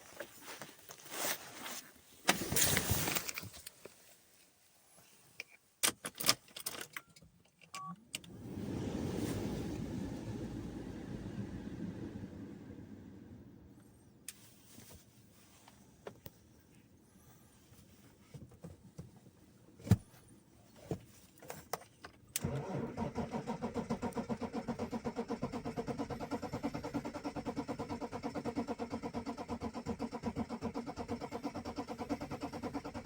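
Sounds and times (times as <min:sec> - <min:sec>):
starter cranking diesel engine: 0:22.4 - 0:33.0.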